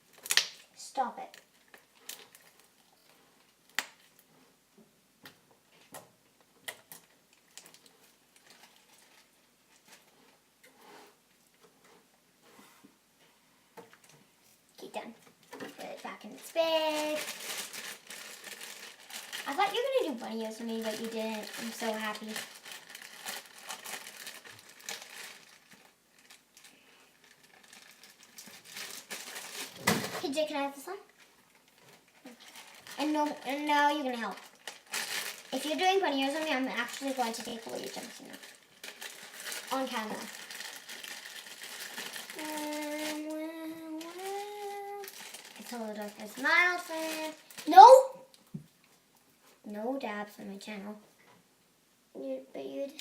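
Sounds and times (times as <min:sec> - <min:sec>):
plastic bag crinkling: 0:00.0 - 0:04.2, 0:06.7 - 0:10.3, 0:15.4 - 0:48.5.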